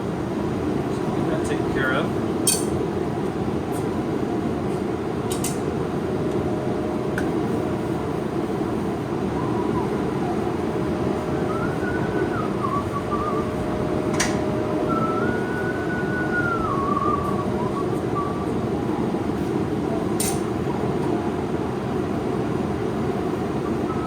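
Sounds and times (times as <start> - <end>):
person whistling a tune: 11.4 - 13.6, 14.8 - 18.7.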